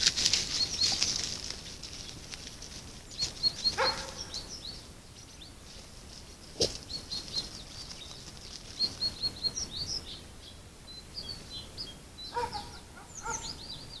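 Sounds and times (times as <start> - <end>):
small birds chirping: 0.0 - 14.0
harsh bird calls: 3.1 - 5.6, 6.6 - 14.0.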